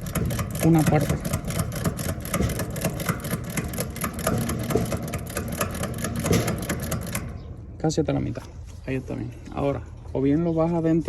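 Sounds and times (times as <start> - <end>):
ratchet wrench clicking: 0.0 - 7.3.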